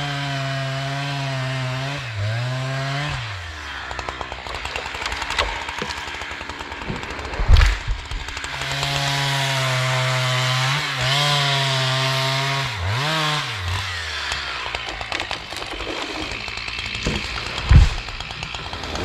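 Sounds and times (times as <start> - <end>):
chainsaw running: 0.0 - 19.0
heavy thump: 6.9 - 8.4, 17.0 - 18.2.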